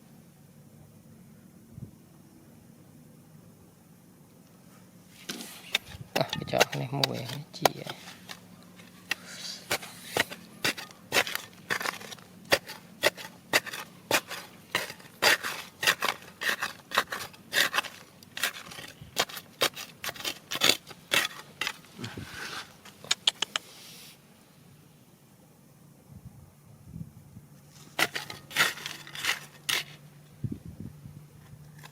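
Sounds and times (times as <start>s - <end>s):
gravel scraping and crunching: 5.1s - 23.0s, 27.6s - 30.2s.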